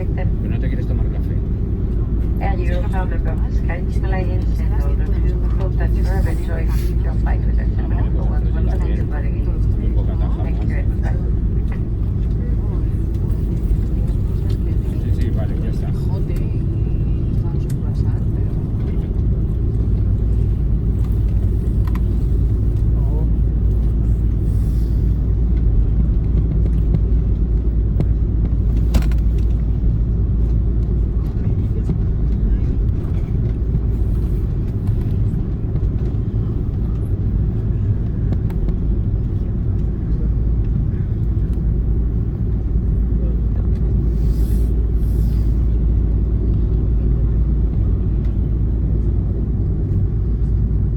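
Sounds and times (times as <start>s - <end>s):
airliner cabin rumble: 0.0s - 50.9s.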